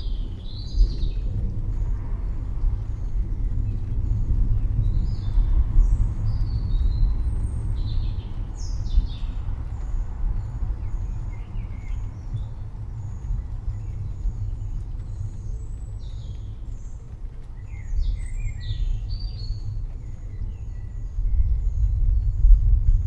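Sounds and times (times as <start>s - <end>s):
small birds chirping: 5.0s - 22.4s
rolling thunder: 21.0s - 23.0s.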